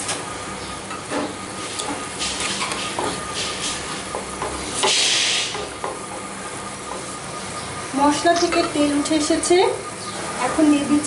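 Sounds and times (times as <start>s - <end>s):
masala sizzling in oil: 1.6s - 7.3s.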